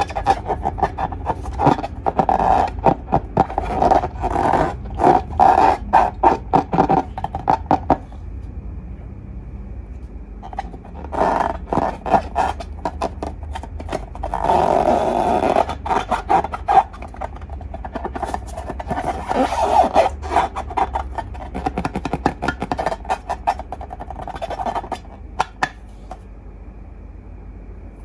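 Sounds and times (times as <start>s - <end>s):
slime squelch: 0.0s - 8.2s, 10.4s - 26.2s.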